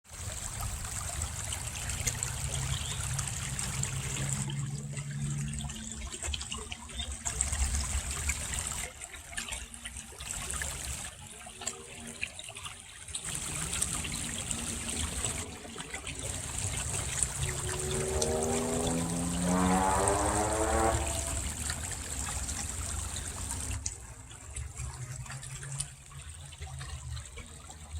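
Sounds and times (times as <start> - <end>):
brook burbling: 0.1 - 27.9
engine hum rising in pitch: 2.1 - 6.6, 13.4 - 23.9.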